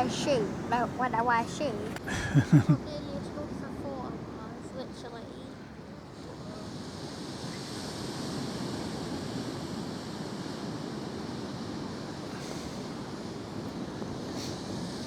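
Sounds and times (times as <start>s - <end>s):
sea waves on shore: 0.0s - 15.0s
wind: 0.0s - 15.0s.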